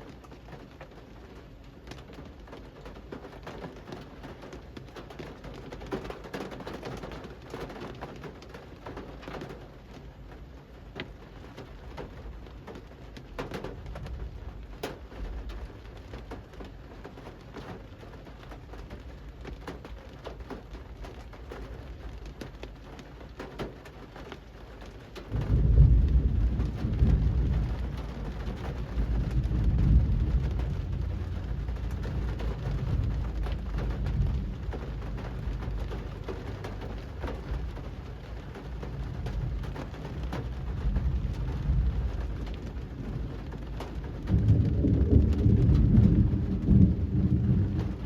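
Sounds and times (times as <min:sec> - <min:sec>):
rain falling on a street: 0:00.0 - 0:48.0
deep low rumble: 0:25.3 - 0:48.0.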